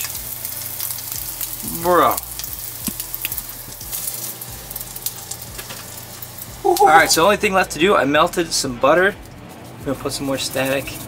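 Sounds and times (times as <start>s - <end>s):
food sizzling in hot oil: 0.0s - 8.3s, 9.2s - 11.0s.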